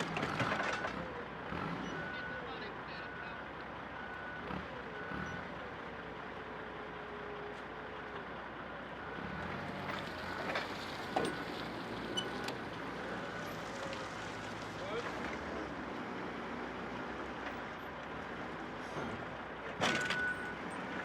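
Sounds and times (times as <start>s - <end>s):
vehicle reversing alarm beeping: 1.8s - 5.6s, 11.0s - 13.6s, 19.9s - 20.9s
engine working: 3.9s - 21.0s.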